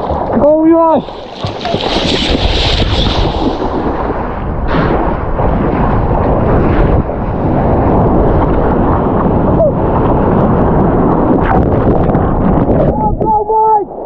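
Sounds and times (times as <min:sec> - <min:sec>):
water rushing: 0:00.0 - 0:05.3
wind buffeting microphone: 0:00.0 - 0:14.0.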